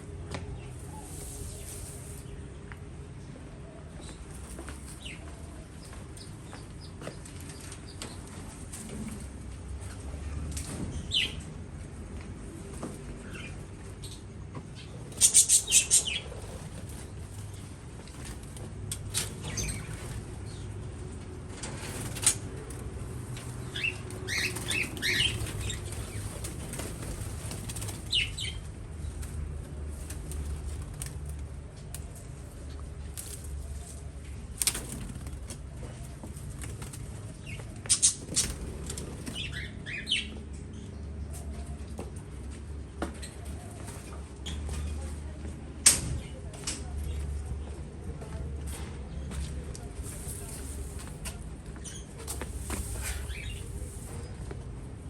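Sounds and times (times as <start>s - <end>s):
small birds chirping: 13.2s - 17.2s, 19.1s - 21.0s, 23.4s - 29.2s, 35.8s - 41.4s, 51.6s - 54.4s
wing flutters: 15.1s - 17.6s.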